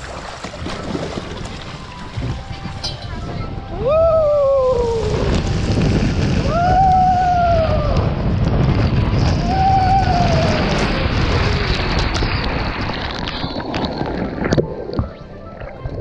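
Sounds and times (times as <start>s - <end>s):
rushing water: 0.0s - 16.0s
wind buffeting microphone: 0.0s - 16.0s
person crying whooo: 3.7s - 5.4s, 6.4s - 8.2s, 9.4s - 11.1s.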